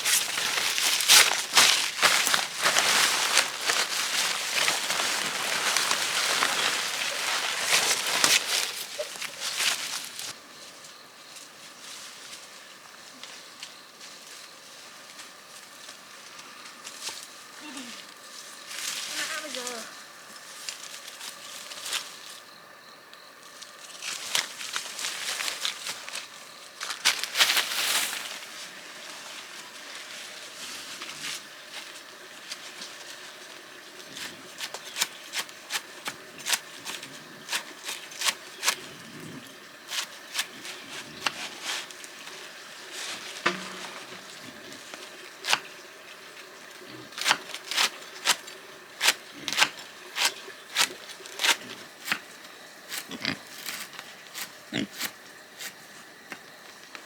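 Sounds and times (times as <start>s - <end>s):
pigs grunting: 38.8s - 39.8s, 46.8s - 47.2s, 52.9s - 55.2s.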